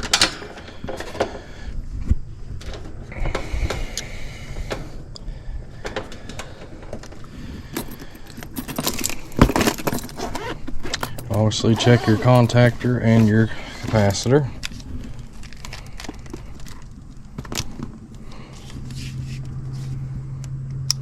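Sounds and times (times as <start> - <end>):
metallic clicks and rattles of wiring: 0.0 - 1.4.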